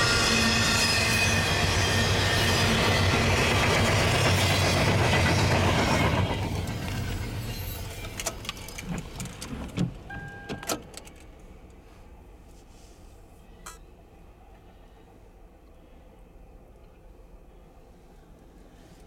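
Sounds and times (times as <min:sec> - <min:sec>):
freight train rumbling past: 0:00.0 - 0:10.2
brief steady tone: 0:10.1 - 0:10.8.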